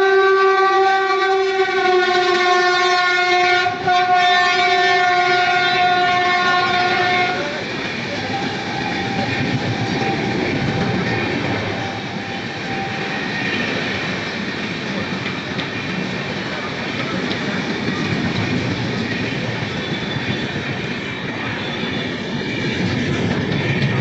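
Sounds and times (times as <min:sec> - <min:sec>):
train horn blast: 0:00.0 - 0:07.6
train wheels clattering on rails: 0:05.3 - 0:24.0.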